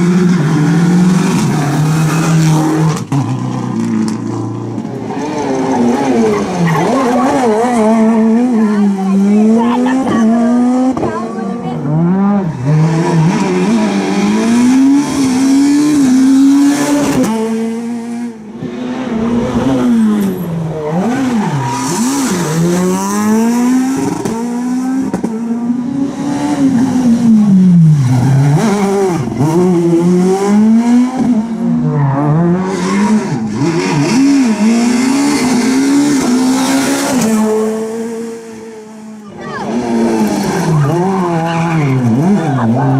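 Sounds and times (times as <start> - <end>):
rally car engine revving: 0.0 - 42.9.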